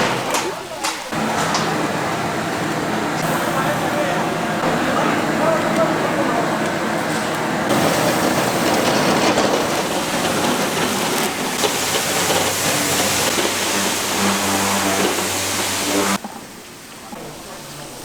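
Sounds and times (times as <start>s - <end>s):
food sizzling in a pan: 7.7s - 16.2s.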